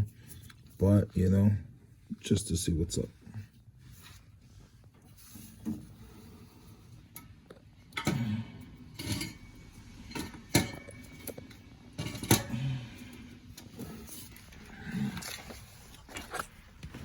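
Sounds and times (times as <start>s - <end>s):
metal parts and tools clinking: 8.9s - 12.6s.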